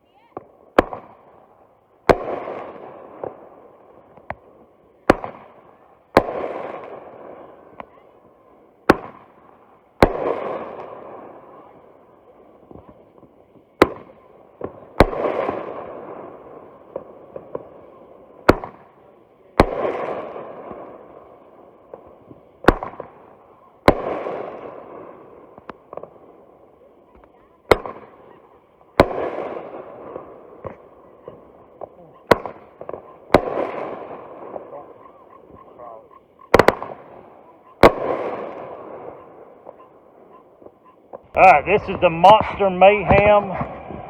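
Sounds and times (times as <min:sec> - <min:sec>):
firework launch report: 0:00.0 - 0:44.0
firework aerial burst: 0:40.7 - 0:44.0.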